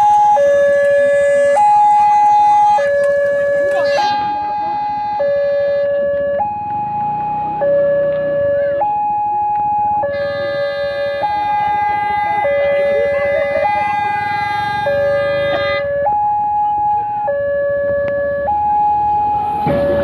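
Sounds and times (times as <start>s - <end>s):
level crossing two-tone alarm: 0.0s - 6.0s.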